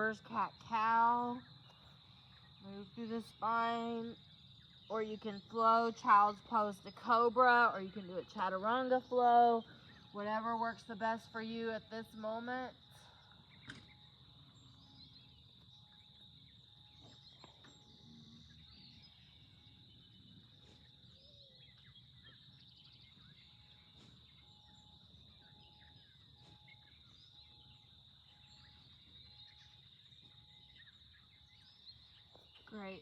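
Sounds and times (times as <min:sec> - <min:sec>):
bird chirps: 0:13.1 - 0:33.0.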